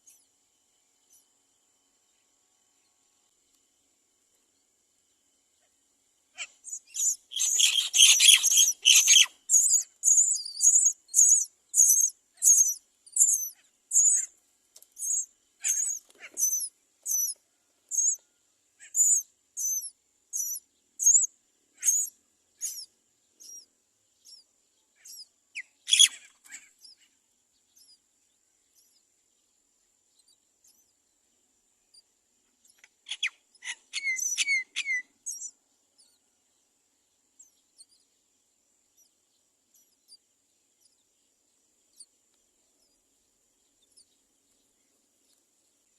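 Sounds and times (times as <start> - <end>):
bird chicks begging calls: 6.4 - 14.3, 15.0 - 18.2, 18.9 - 22.9, 25.8 - 26.9, 32.7 - 36.1.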